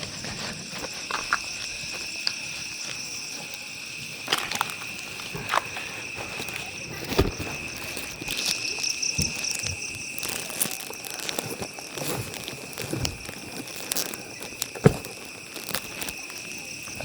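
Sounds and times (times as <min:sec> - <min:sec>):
crackles and knocks: 0:00.0 - 0:17.0
crickets trilling: 0:00.0 - 0:17.0
pulsing insect chirp: 0:00.0 - 0:17.0.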